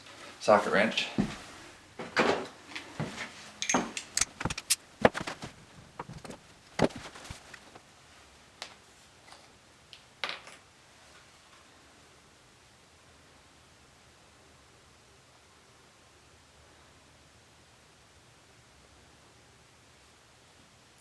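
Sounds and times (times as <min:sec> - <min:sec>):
socket wrench clicking: 0:03.6 - 0:04.8.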